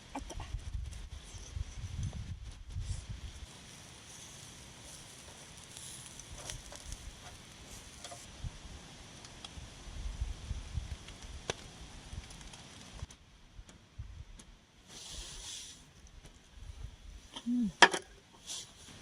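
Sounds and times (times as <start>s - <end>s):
wind rumbling on microphone: 0.1s - 8.8s, 9.5s - 14.4s
steady hiss: 0.9s - 13.1s, 14.8s - 16.0s, 16.6s - 19.0s
small clicks and ticks: 4.4s - 8.3s, 11.0s - 13.8s.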